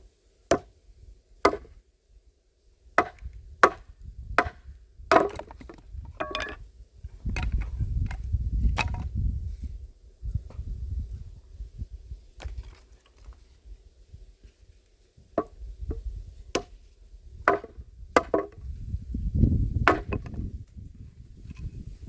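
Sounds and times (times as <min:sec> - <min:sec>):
axe chopping wood: 0:00.5 - 0:00.8, 0:01.4 - 0:01.8, 0:03.0 - 0:06.6, 0:08.8 - 0:09.1, 0:15.4 - 0:16.8, 0:17.4 - 0:18.6, 0:19.8 - 0:20.4.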